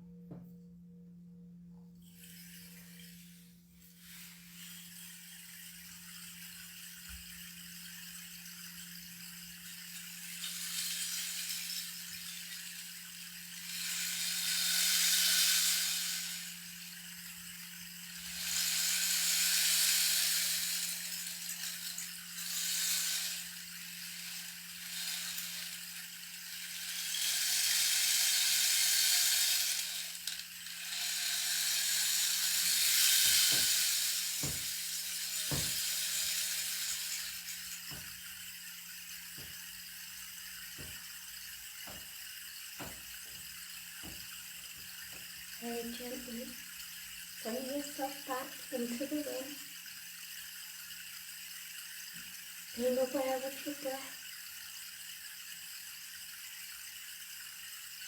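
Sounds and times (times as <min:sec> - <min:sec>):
hissing hand rattle: 0:02.0 - 0:58.0.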